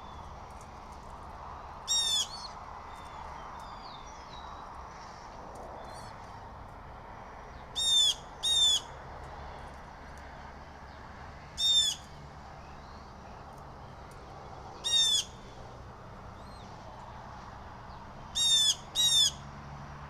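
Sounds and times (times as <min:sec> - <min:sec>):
faint songbird chirping: 0:01.5 - 0:06.6, 0:10.9 - 0:15.7, 0:16.3 - 0:19.4
blue jay harsh calls: 0:01.8 - 0:03.2, 0:07.7 - 0:09.0, 0:11.6 - 0:12.2, 0:14.8 - 0:15.6, 0:18.3 - 0:19.5.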